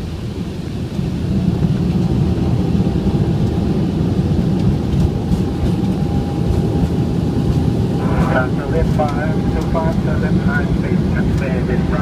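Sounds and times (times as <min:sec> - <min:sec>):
airplane engine and wheel rumble: 0:00.0 - 0:12.0.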